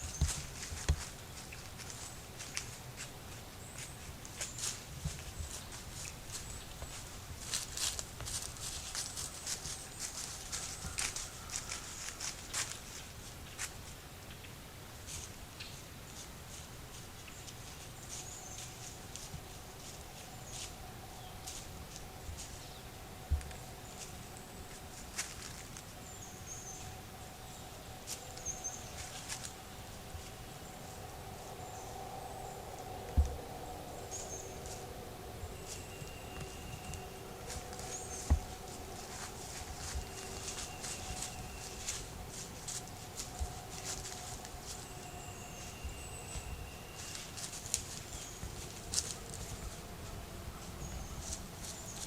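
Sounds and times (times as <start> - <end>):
rustling in dry leaves: 0.0 - 52.0
small birds chirping: 0.0 - 52.0
faint hum: 17.6 - 52.0.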